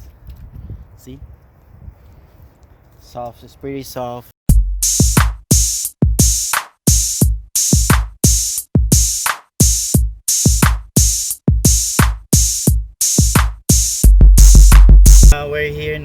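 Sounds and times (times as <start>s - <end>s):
drum machine beat: 4.5s - 15.4s.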